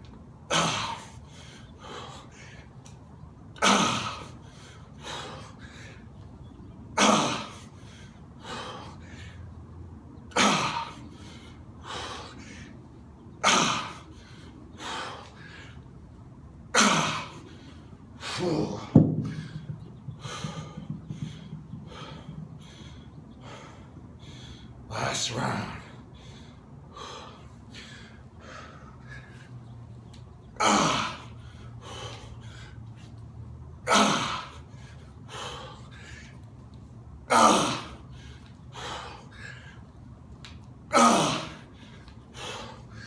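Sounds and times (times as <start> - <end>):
man breathing hard: 0.5 - 2.8, 3.6 - 6.2, 7.0 - 9.7, 10.3 - 16.0, 16.8 - 29.8, 30.6 - 33.2, 33.8 - 36.5, 37.3 - 40.0, 40.9 - 43.0
ragged panting: 18.4 - 23.8.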